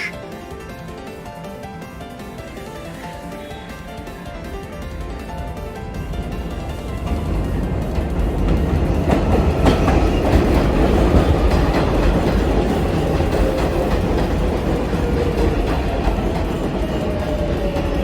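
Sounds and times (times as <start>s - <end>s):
train wheels rumbling on rail: 0.0s - 18.0s
wheels clacking over rail joints: 0.0s - 18.0s.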